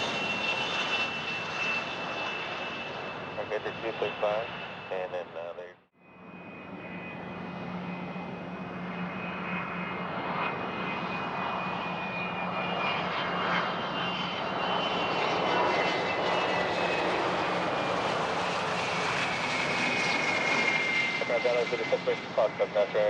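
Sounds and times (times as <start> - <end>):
jet engines whining: 0.0 - 23.0.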